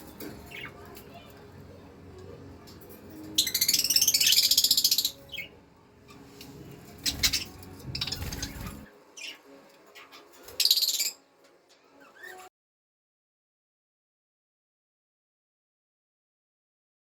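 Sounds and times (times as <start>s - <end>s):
baby budgerigars chirping: 3.4s - 11.2s.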